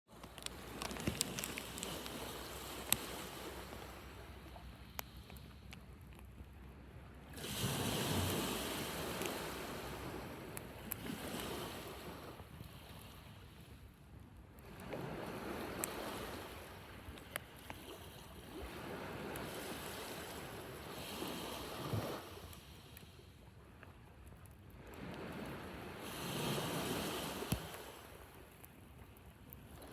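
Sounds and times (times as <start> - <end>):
sharp crackles: 0.1 - 3.3
waves breaking on beach: 0.1 - 5.8, 7.2 - 13.9, 14.6 - 23.4, 24.8 - 29.9.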